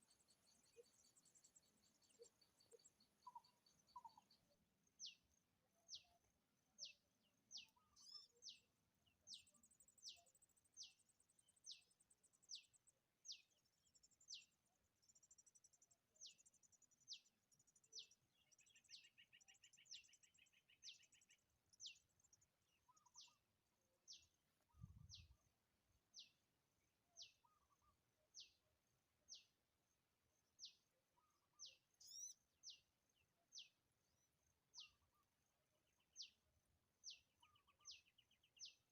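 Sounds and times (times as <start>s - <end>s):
faint high twittering: 32.0s - 32.4s.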